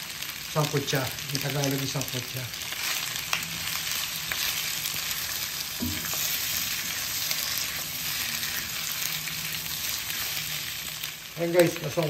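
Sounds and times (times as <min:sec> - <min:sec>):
meat sizzling in a wok: 0:00.0 - 0:12.0
soft knock: 0:05.8 - 0:06.1.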